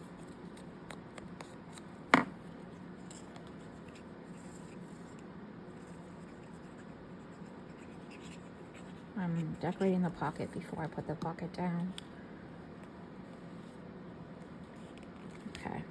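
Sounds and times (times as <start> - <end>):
sharp knock on desk: 2.1 - 2.3.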